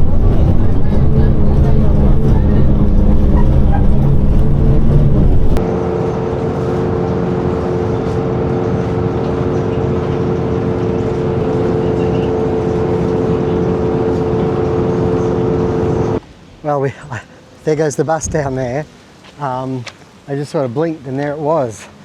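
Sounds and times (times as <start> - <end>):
loud engine rumble: 0.0 - 16.2
engine droning: 0.0 - 22.0.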